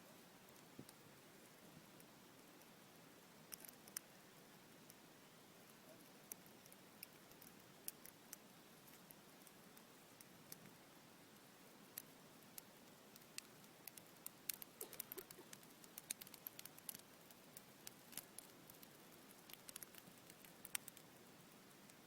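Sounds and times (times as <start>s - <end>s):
campfire crackling and popping: 5.6s - 22.0s.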